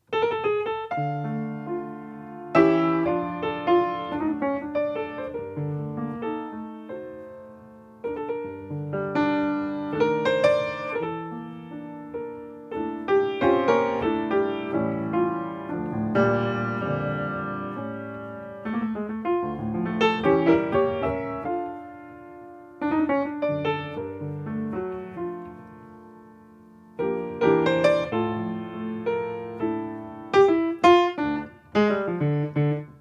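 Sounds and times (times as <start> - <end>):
piano playing hymn chords: 0.0 - 33.0.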